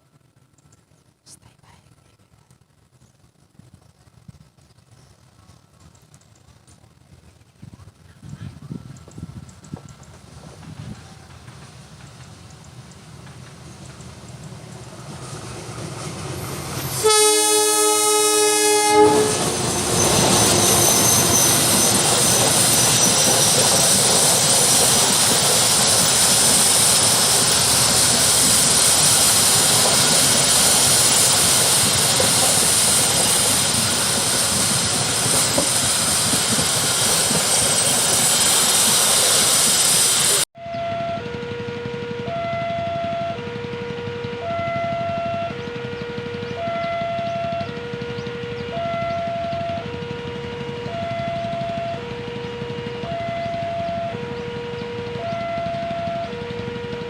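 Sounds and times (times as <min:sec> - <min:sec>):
train wheels clattering on rails: 0:03.0 - 0:17.6, 0:18.3 - 0:40.4, 0:41.1 - 0:57.0
train horn: 0:16.8 - 0:22.8, 0:40.6 - 0:57.0.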